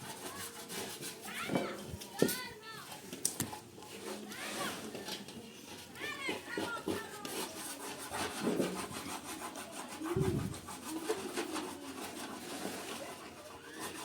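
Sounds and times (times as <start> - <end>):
wood rubbing and scraping: 0.0 - 14.0.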